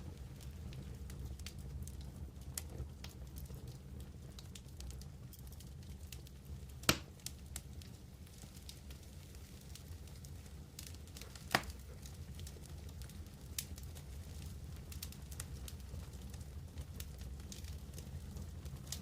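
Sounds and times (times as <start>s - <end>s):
campfire crackling: 0.0s - 19.0s
sharp pop of burning wood: 6.8s - 7.2s, 11.4s - 11.8s.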